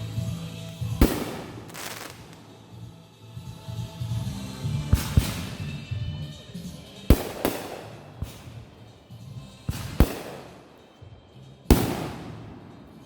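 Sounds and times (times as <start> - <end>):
background music: 0.0 - 13.0
fireworks bangs: 0.9 - 2.6, 4.9 - 6.3, 7.1 - 8.8, 9.6 - 10.8, 11.7 - 13.0.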